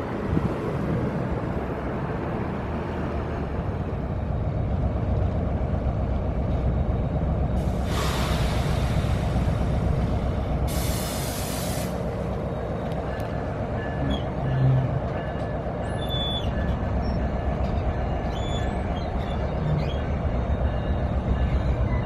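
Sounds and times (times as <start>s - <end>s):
train idling rumble: 0.0s - 22.0s
train pulling away: 7.4s - 22.0s
air brakes hissing: 7.6s - 12.1s.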